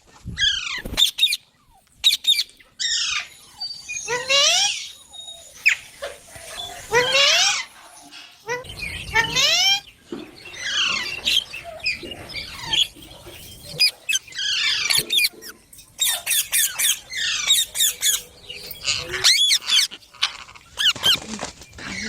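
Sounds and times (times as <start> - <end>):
parrot chirping and squeaking: 8.4 - 21.2.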